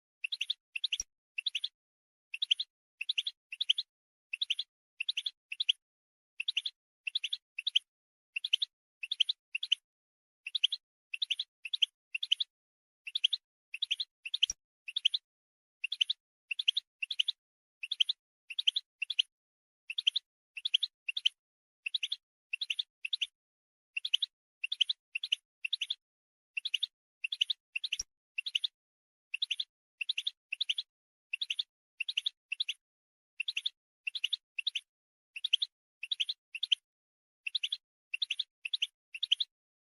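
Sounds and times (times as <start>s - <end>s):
goldfinch contact calls: 0.2s - 1.8s, 24.0s - 26.0s, 26.6s - 28.8s, 29.4s - 32.8s, 33.4s - 36.9s, 37.5s - 39.5s.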